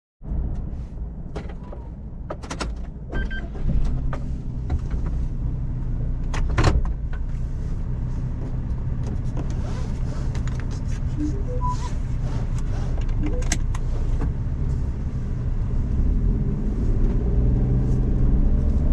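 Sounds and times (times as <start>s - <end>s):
road noise: 0.2s - 18.9s
van engine drone: 0.2s - 18.9s
clicks and knocks in cabin: 1.3s - 5.2s
short beep: 11.1s - 12.0s, 13.2s - 13.7s.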